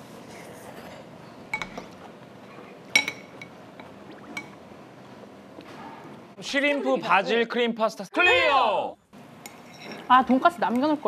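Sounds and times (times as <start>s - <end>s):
cutlery scraping ceramic plates: 9.5s - 10.3s.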